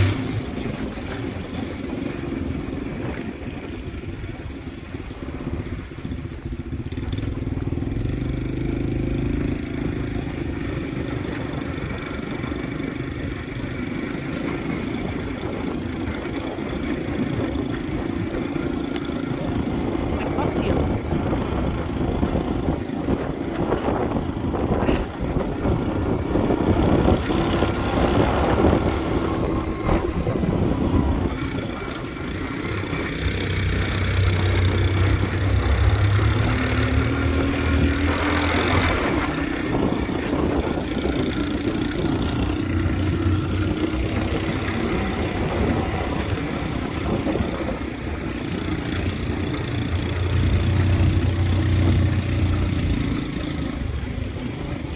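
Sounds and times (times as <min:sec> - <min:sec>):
motorbike engine running: 0:00.0 - 0:54.9
ride noise rushing: 0:19.3 - 0:43.2.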